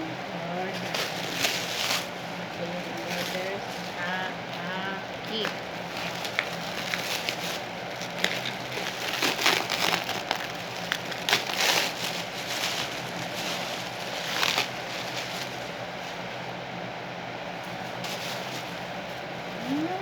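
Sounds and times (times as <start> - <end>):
plastic packaging crinkling: 0.7 - 16.2.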